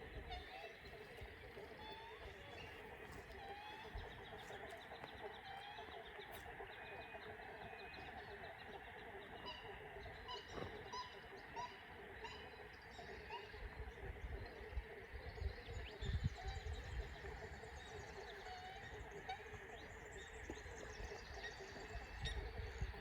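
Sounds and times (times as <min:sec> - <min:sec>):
birds chirping and whistling: 0:00.0 - 0:11.6
background bird chorus: 0:00.0 - 0:23.0.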